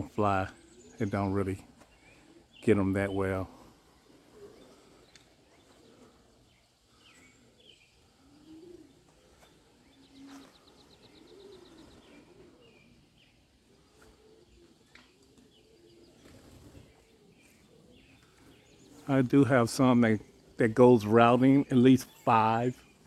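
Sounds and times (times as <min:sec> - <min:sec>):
pigeons cooing: 0:00.0 - 0:23.0
small birds chirping: 0:00.0 - 0:23.0
bird trill: 0:14.3 - 0:23.0.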